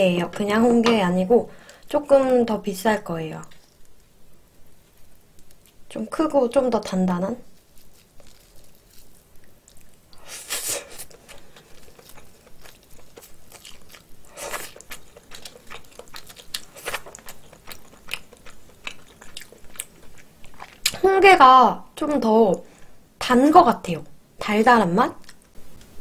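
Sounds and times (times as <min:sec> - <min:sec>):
loud wet chewing sounds: 0:07.6 - 0:21.0
wet chewing mouth clicks: 0:11.0 - 0:21.0.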